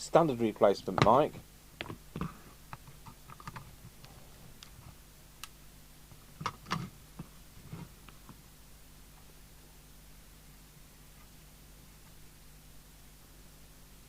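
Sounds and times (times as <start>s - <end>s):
faint steady hum: 0.0s - 14.0s
clicks and knocks of handling radio: 1.8s - 3.7s.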